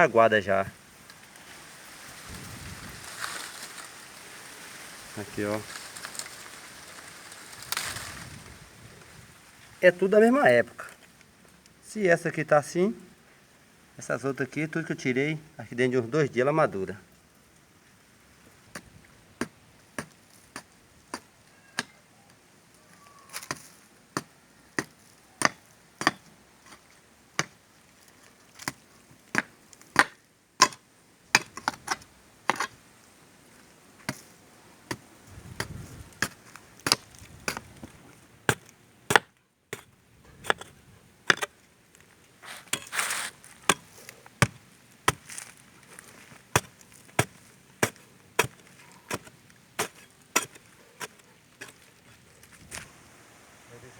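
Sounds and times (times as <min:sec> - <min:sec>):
rustle: 0:00.0 - 0:53.9
sharp chopping strikes: 0:38.5 - 0:40.7, 0:46.6 - 0:51.8.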